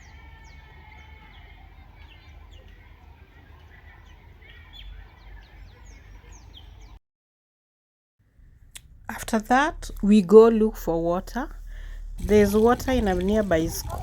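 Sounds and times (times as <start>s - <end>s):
small birds chirping: 0.0s - 7.0s, 10.8s - 14.0s
low steady rumble: 8.3s - 14.0s.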